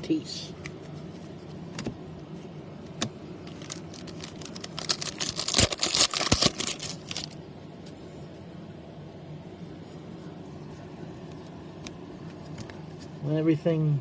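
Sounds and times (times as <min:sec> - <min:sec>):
foil wrapper tearing and crinkling: 0:03.5 - 0:07.4.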